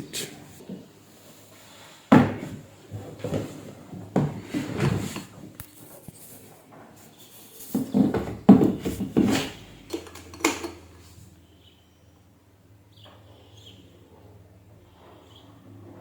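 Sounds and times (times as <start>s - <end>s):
hard objects knocking and clattering: 7.7s - 10.9s.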